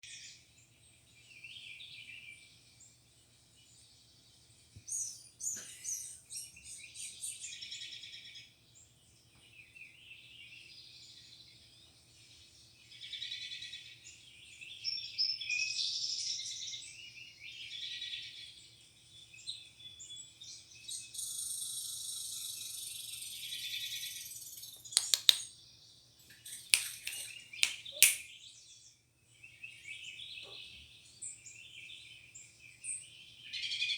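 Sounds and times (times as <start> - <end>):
small birds chirping: 0.1 - 33.9
sharp clicks: 25.0 - 25.4, 26.7 - 28.2.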